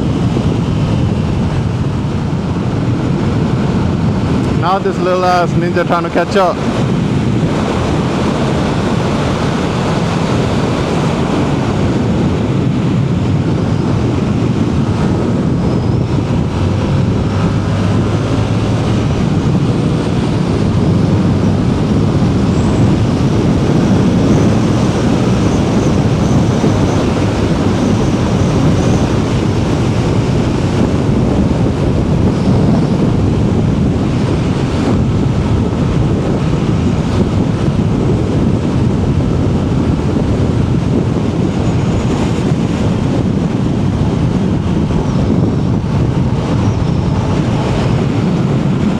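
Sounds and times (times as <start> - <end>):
wind rush on microphone: 0.0 - 48.9
motorcycle engine running: 13.6 - 36.1.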